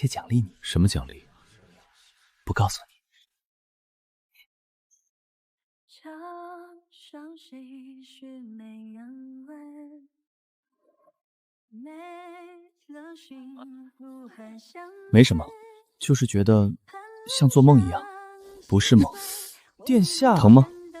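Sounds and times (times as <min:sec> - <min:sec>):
woman singing: 0:05.9 - 0:10.1, 0:11.7 - 0:15.9, 0:16.9 - 0:21.0.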